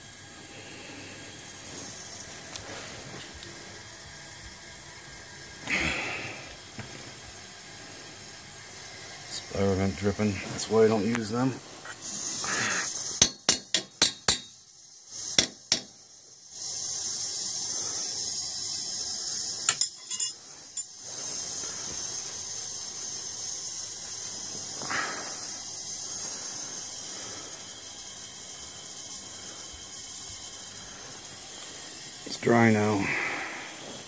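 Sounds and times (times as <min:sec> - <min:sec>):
heating system hissing: 0:00.0 - 0:34.0
sharp metallic clinks: 0:19.7 - 0:21.0.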